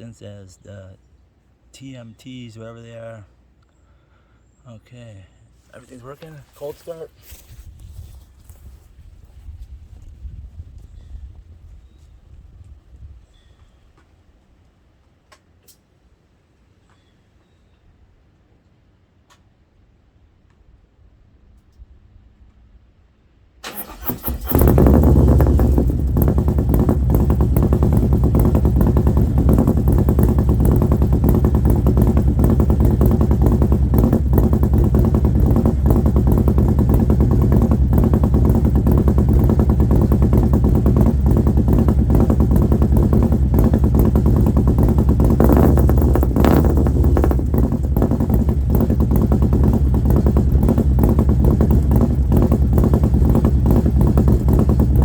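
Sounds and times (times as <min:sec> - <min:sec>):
motorcycle engine starting: 0:23.6 - 0:55.0
motorcycle engine idling loudly: 0:23.7 - 0:55.0.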